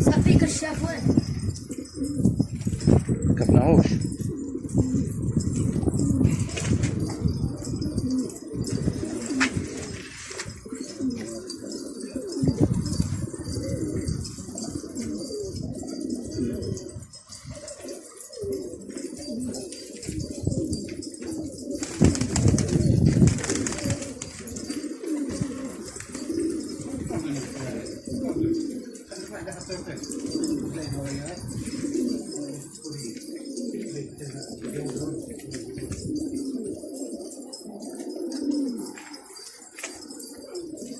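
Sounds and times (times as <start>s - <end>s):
pigeons cooing: 0.0s - 40.9s.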